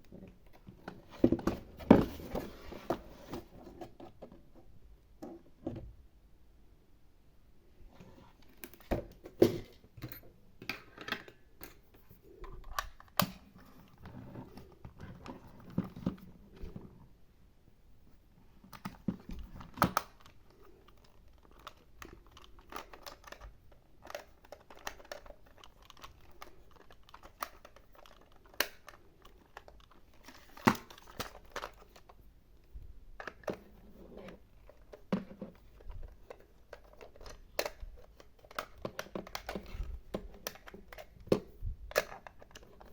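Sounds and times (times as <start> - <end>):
crinkling rustles: 18.7 - 41.3
plastic toy pieces clicking: 19.8 - 32.0.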